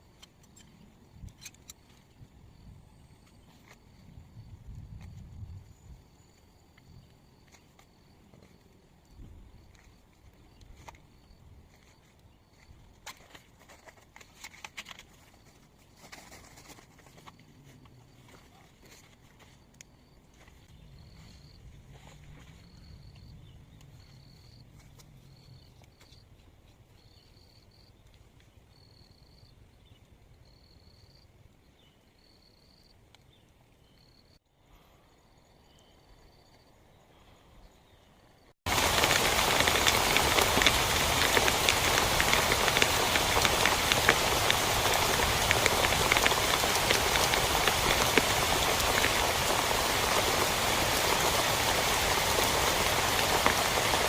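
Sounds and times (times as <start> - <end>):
heavy rain: 38.7 - 54.0.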